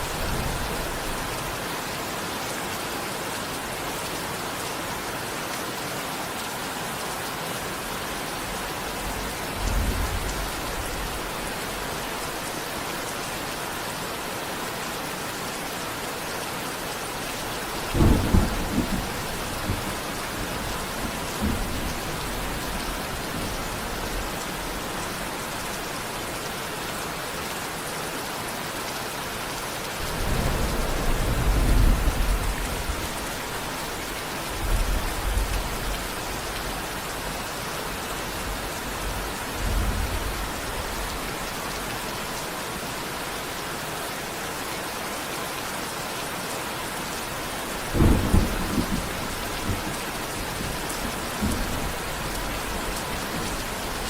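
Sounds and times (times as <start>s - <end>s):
heavy rain: 0.0s - 54.0s
thunder rumbling: 17.7s - 24.9s, 30.0s - 36.0s, 47.7s - 54.0s.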